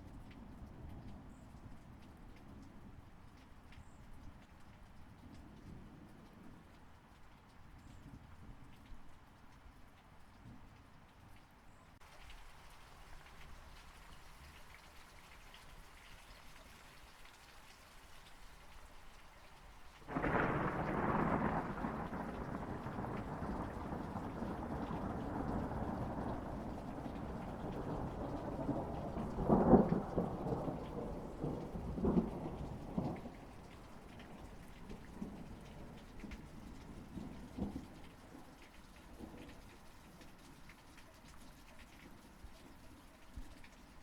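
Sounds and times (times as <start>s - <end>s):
steady rain: 0.0s - 44.0s
thunderclap rumbling and cracking: 20.1s - 37.9s.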